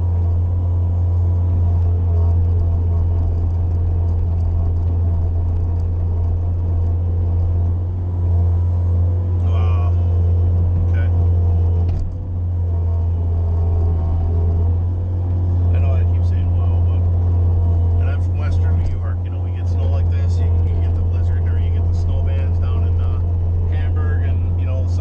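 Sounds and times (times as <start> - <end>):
loader engine running under load: 0.0 - 25.0.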